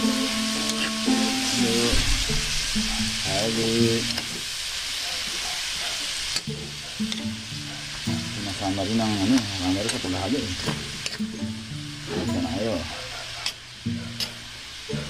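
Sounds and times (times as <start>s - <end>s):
music with singing voice: 0.0s - 4.3s
food sizzling in a pan: 0.0s - 15.0s.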